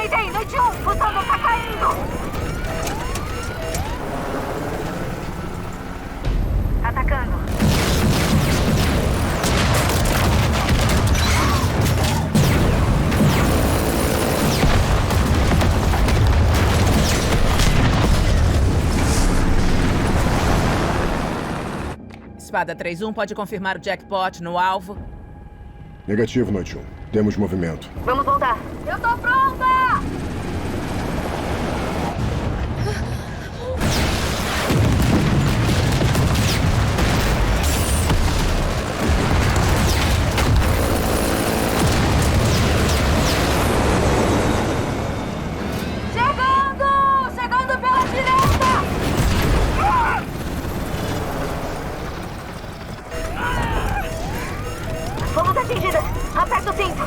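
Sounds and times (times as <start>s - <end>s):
sharp explosion booms: 6.3s - 13.8s, 33.8s - 41.1s.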